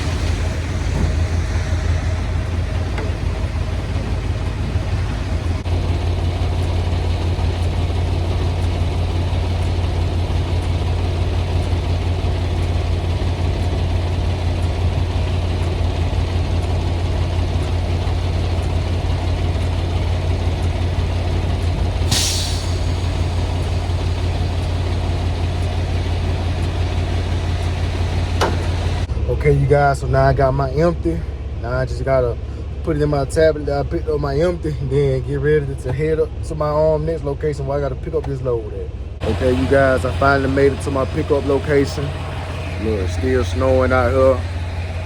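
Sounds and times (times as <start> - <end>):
diesel engine running: 0.0 - 45.0
air brake hiss: 22.0 - 24.9.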